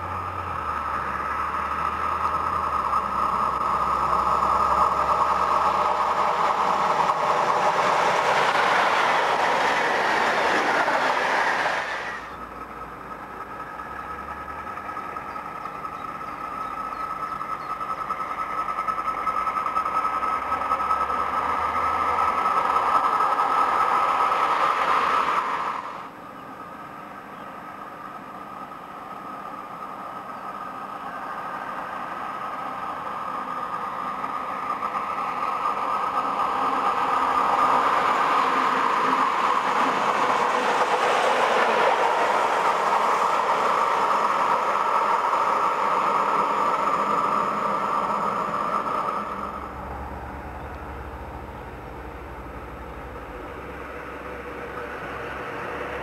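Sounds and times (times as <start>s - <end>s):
electric locomotive passing: 0.0s - 56.0s.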